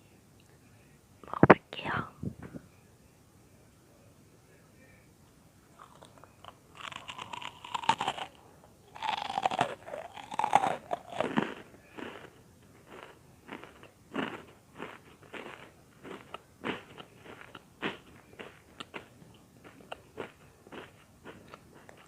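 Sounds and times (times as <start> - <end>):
crunchy bread chewing: 5.8 - 22.0.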